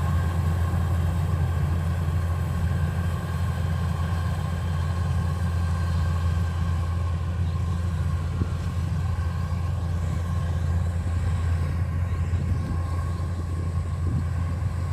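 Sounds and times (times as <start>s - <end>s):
combine harvester engine rumble: 0.0s - 14.9s
machinery whine: 0.0s - 14.9s.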